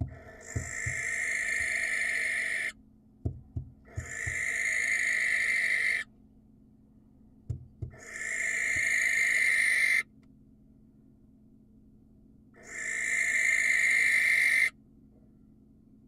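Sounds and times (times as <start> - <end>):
barn owl screeching: 0.0 - 2.8, 3.9 - 6.1, 7.9 - 10.1, 12.6 - 14.8
low knocks: 3.2 - 4.4, 7.5 - 8.0.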